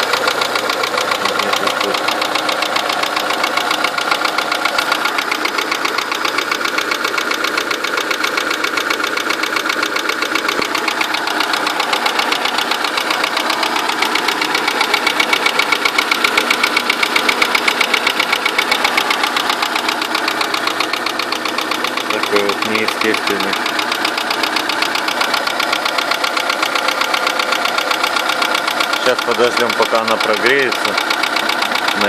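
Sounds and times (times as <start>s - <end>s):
engine running with rapid knock: 0.0s - 32.0s.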